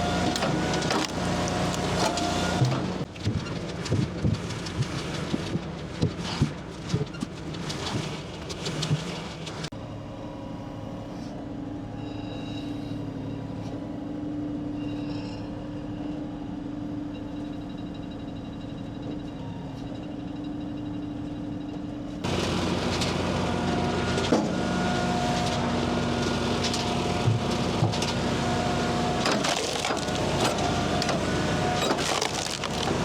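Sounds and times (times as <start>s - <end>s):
loud noisy engine: 0.0s - 3.1s, 22.2s - 33.0s
engine humming: 0.0s - 4.0s, 21.7s - 33.0s.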